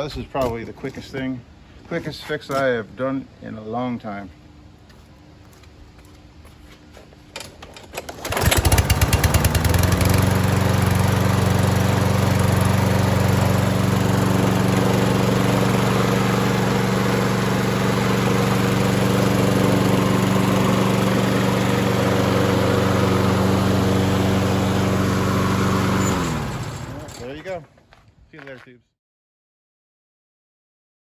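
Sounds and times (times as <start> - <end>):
lawn mower engine starting and running: 7.3 - 27.7.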